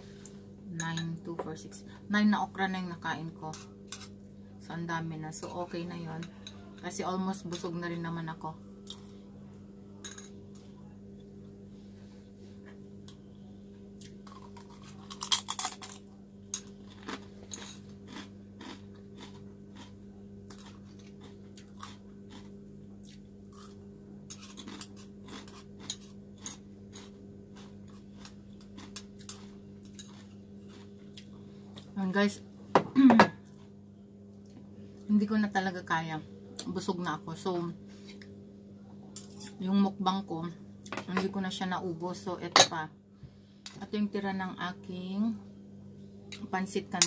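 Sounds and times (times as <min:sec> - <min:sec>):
steady low hum: 0:00.0 - 0:47.0
chewing and crunching: 0:14.0 - 0:32.0.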